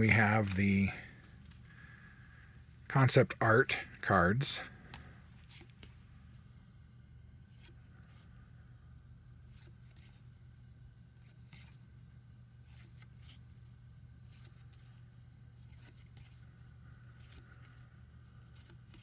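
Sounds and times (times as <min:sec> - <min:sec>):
faint low hum: 0:00.0 - 0:19.0
cards sliding and flicking: 0:11.2 - 0:11.8, 0:14.2 - 0:19.0.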